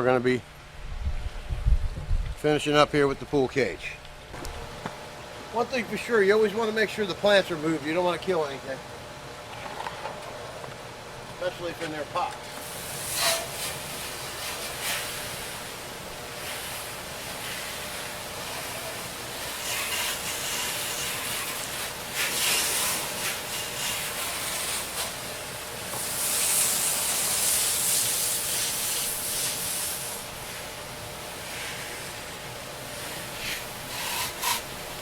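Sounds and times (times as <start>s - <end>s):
faint machine hum: 0.0s - 35.0s
pressure washer spraying water: 12.6s - 35.0s.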